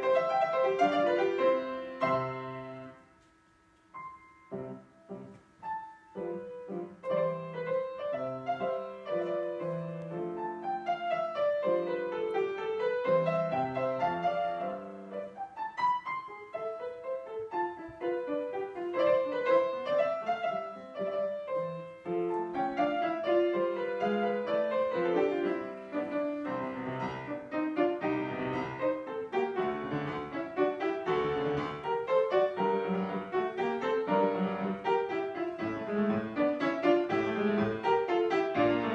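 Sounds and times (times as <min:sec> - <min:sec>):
classical piano music: 0:00.0 - 0:38.9.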